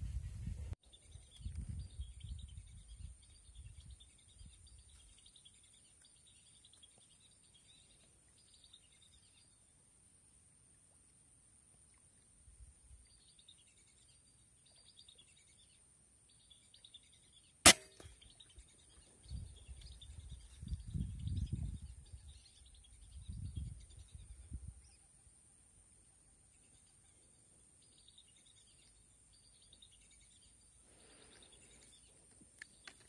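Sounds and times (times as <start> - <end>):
air rifle shot: 17.6 - 18.2
insect chirping: 22.5 - 33.0.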